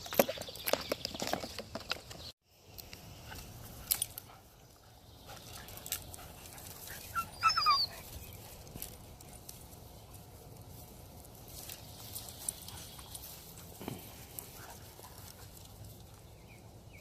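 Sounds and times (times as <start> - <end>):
puppy whimpering: 7.1 - 8.0.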